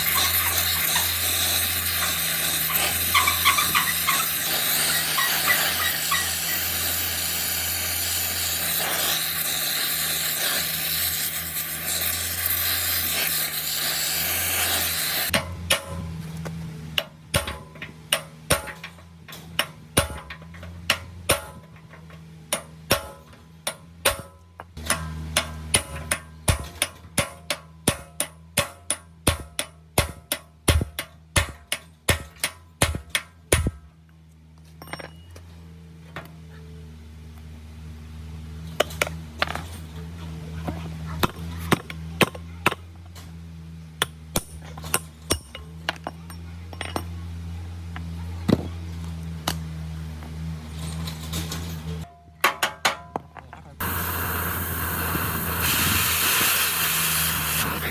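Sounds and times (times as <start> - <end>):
hand tools clinking on metal: 0.0 - 6.9, 34.6 - 35.6, 44.5 - 47.4
hammer striking metal: 15.3 - 16.2, 17.0 - 33.8, 44.0 - 47.2
electric motor hum: 53.8 - 57.9.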